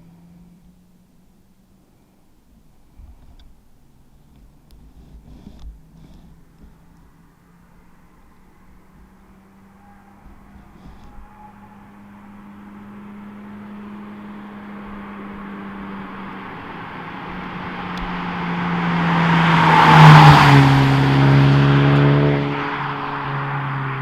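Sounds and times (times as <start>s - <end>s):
motor vehicle passing by: 5.3s - 24.0s.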